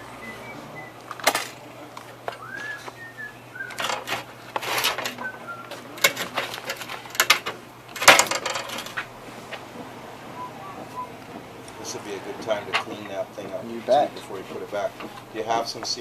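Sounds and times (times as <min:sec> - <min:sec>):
metal tools clicking and clanking: 0:03.7 - 0:05.3, 0:06.0 - 0:09.1.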